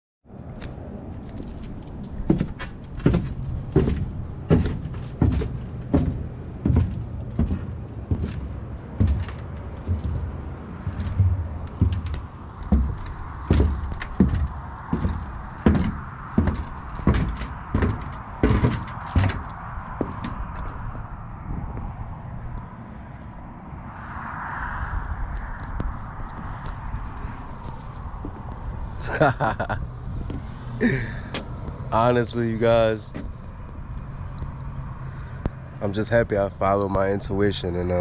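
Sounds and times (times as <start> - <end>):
heavy thumps at walking pace: 1.3 - 20.7.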